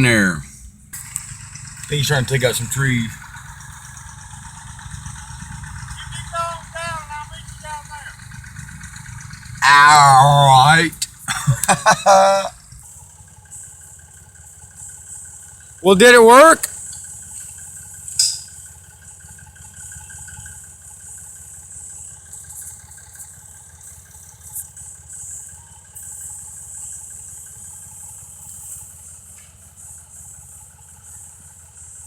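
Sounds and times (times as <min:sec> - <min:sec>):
engine idling: 0:00.0 - 0:32.0
sharp click: 0:18.1 - 0:18.5.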